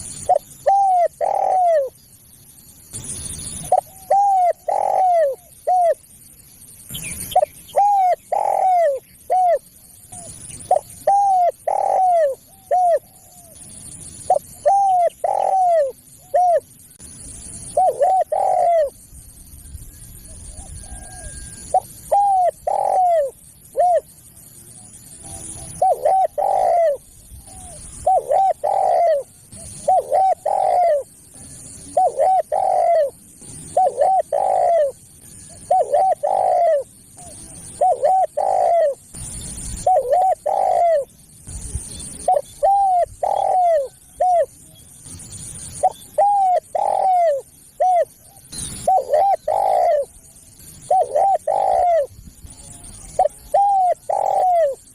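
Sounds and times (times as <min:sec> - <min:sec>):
dove cooing: 0:00.0 - 0:02.0, 0:03.2 - 0:06.2, 0:06.9 - 0:19.1, 0:19.9 - 0:24.1, 0:24.8 - 0:41.1, 0:42.1 - 0:44.8, 0:45.6 - 0:54.9.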